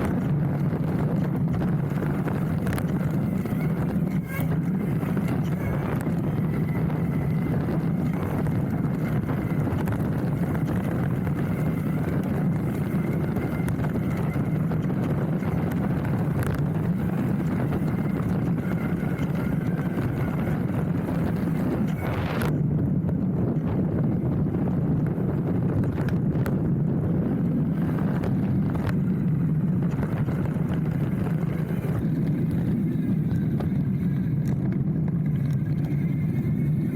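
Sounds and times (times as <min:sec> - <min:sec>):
bike rattling: 0:00.0 - 0:36.9
tyres rumbling on dirt: 0:00.0 - 0:36.9.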